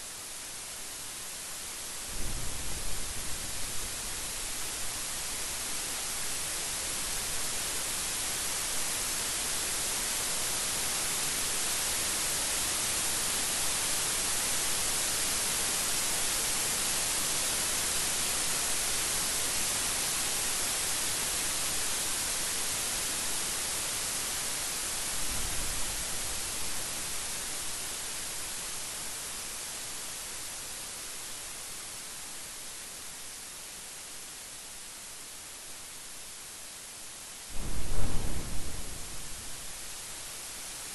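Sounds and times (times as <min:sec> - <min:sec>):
rain hissing: 0:01.1 - 0:31.8, 0:37.2 - 0:40.9
low thud: 0:37.5 - 0:39.6.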